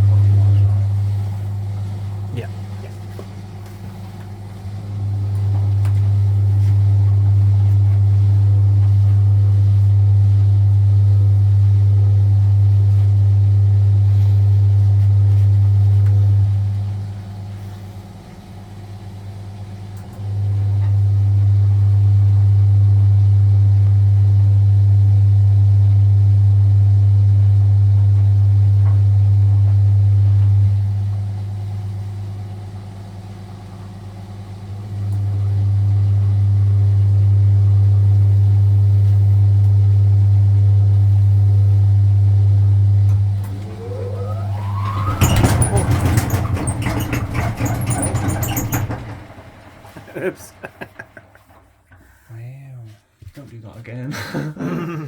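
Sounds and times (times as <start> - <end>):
washing machine drum spinning: 0.0 - 17.1, 42.6 - 51.9.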